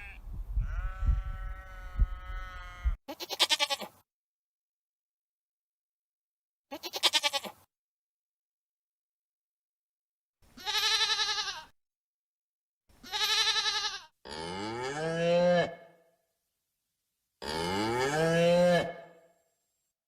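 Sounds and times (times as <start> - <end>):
livestock bleating: 0.0 - 4.0, 6.7 - 7.6, 10.6 - 11.8, 13.0 - 15.9, 17.4 - 19.2.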